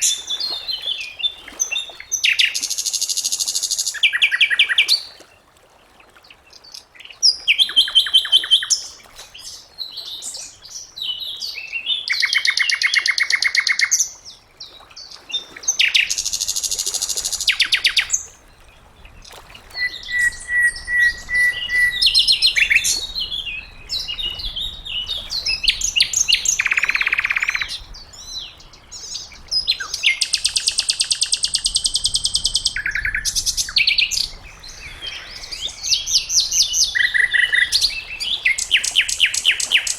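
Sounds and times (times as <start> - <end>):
bird song with trills and rattles: 19.0 - 39.9
clear whistled bird notes: 19.8 - 24.7.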